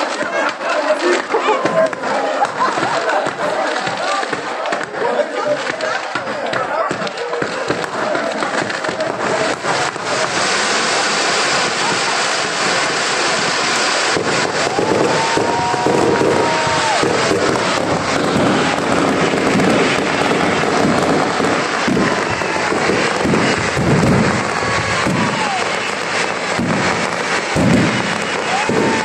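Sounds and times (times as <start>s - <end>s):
fireworks crackling and popping: 0.0s - 29.0s
whistling firework tones: 7.0s - 29.0s.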